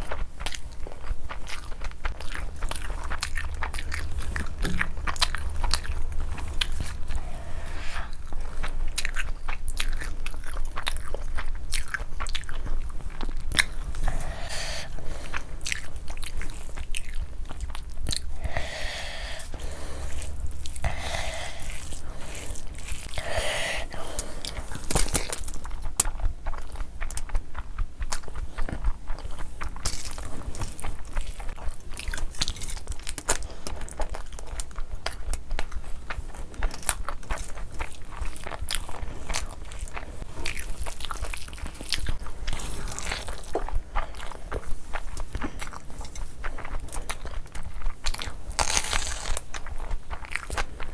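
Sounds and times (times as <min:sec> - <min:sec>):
person chewing food: 0:00.0 - 0:50.9.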